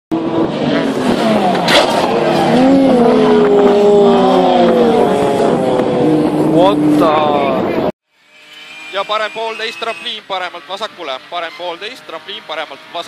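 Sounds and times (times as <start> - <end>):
rally car engine revving: 0.1 - 7.9.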